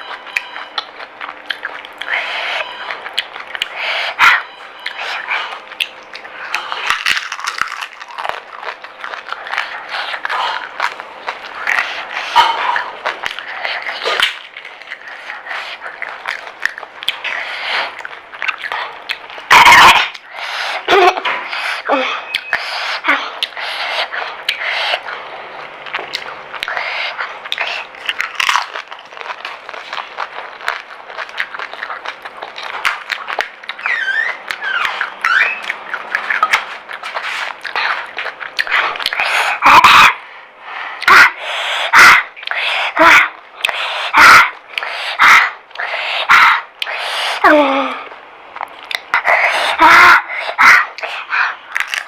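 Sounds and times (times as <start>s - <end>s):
crisp food crunching: 0.0s - 3.8s, 4.7s - 20.5s, 23.3s - 39.6s, 50.6s - 52.0s
wet mouth noises: 0.3s - 25.2s, 41.0s - 52.0s
hissing breaths: 20.2s - 25.1s, 40.2s - 43.0s, 43.6s - 48.1s
pitched whimpers: 20.8s - 23.5s, 33.8s - 35.7s.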